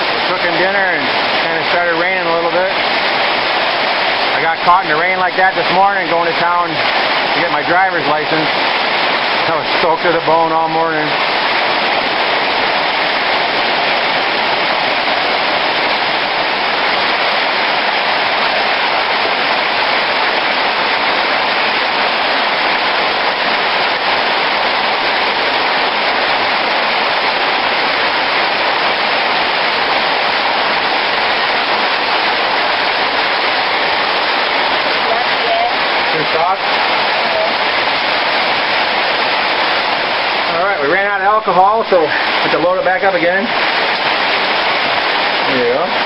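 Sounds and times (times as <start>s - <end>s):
hard rain falling: 0.0s - 46.0s.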